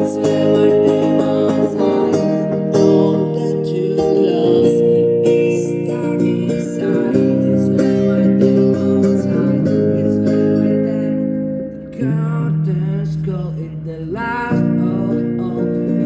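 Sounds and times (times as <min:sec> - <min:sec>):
guitar strumming chords: 0:00.0 - 0:16.0.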